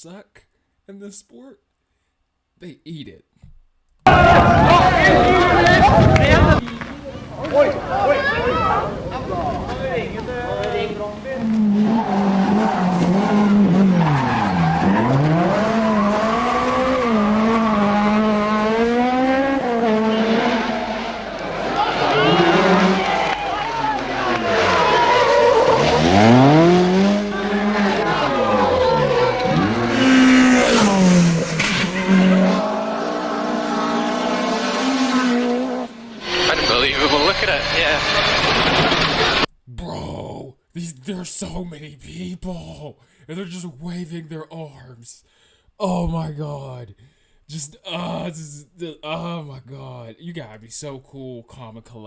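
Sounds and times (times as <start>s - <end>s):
tyre skid noise: 4.1s - 6.6s, 7.6s - 39.5s
rally car engine revving: 4.1s - 6.8s, 10.8s - 39.5s.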